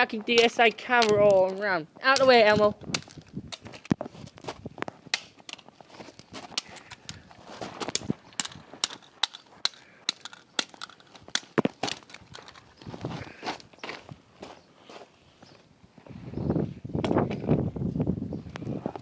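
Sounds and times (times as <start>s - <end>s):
plastic camera being smashed: 5.1s - 12.8s.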